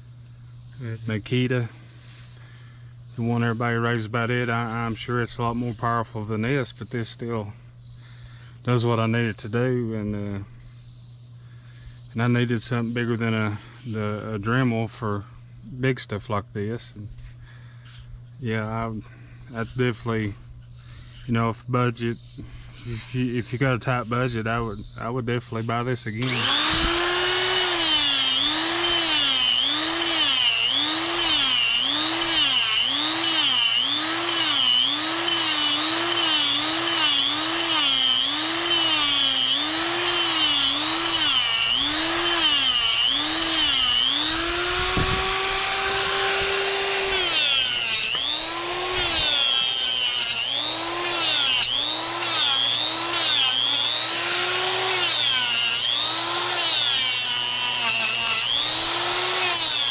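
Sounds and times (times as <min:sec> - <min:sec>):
die grinder carving wood: 0:26.2 - 0:59.9.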